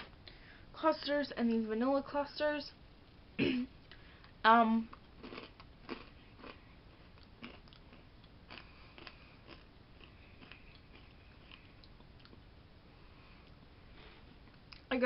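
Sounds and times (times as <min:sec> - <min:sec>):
person chewing crunchy food: 0:03.9 - 0:12.5.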